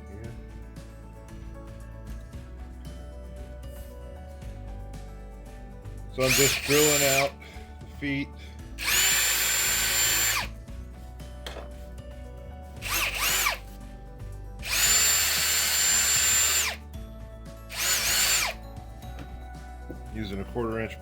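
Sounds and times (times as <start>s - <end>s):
power drill whining: 6.2s - 10.6s, 12.8s - 13.7s, 14.6s - 16.8s, 17.7s - 18.6s.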